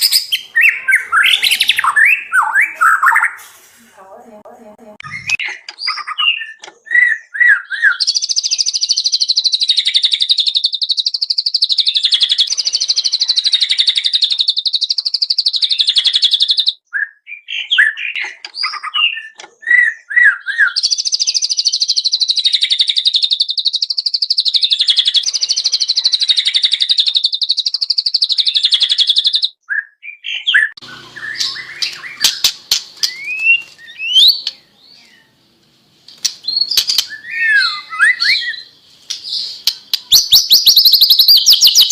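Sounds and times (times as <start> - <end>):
bird whistling and trilling: 0.0 - 3.4, 5.0 - 35.3, 36.4 - 41.9.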